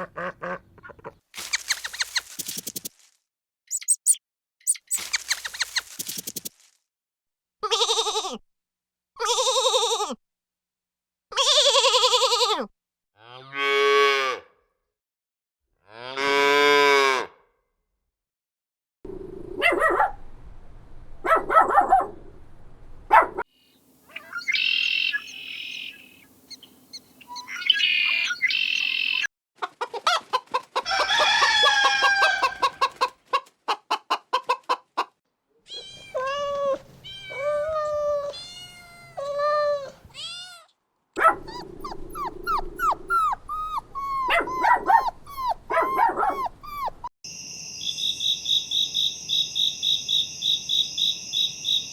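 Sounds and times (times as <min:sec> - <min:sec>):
hens clucking: 0:29.6 - 0:35.2
rooster crowing: 0:30.8 - 0:32.9.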